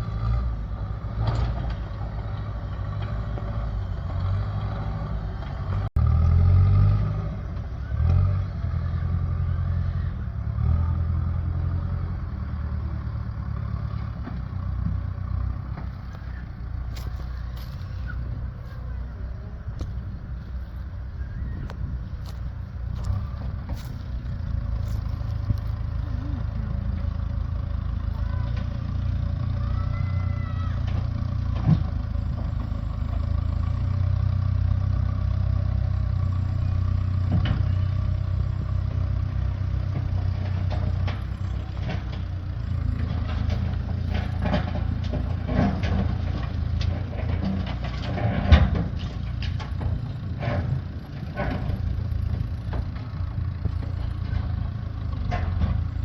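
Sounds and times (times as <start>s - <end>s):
engine humming: 0.0s - 56.0s
knocks and clanks: 39.9s - 56.0s.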